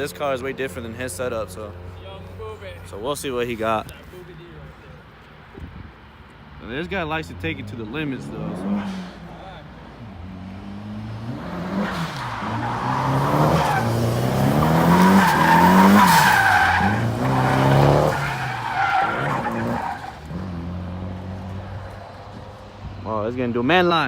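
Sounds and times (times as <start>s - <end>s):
tires squealing: 6.7s - 23.9s
car engine revving: 7.2s - 23.6s.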